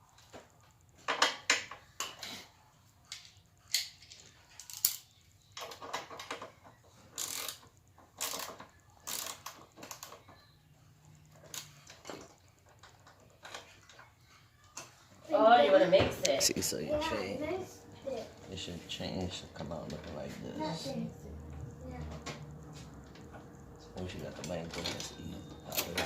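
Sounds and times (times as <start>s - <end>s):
metal chain clicks and clinks: 3.7s - 5.1s.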